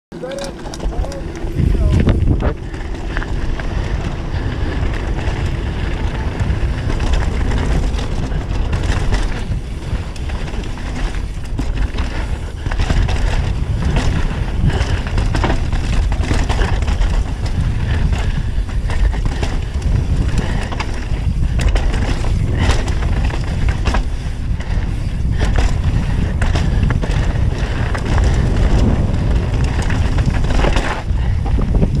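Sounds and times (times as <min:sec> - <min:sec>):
bike knocking and rattling: 0:00.1 - 0:32.0
tyres rumbling over dirt: 0:00.1 - 0:32.0
wind on microphone: 0:00.2 - 0:32.0.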